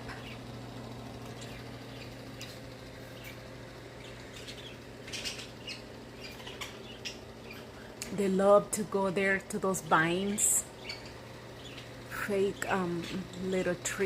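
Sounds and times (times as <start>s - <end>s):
steady low hum: 0.0s - 14.0s
budgerigars chirping: 1.4s - 3.4s, 4.0s - 7.9s, 10.8s - 13.3s.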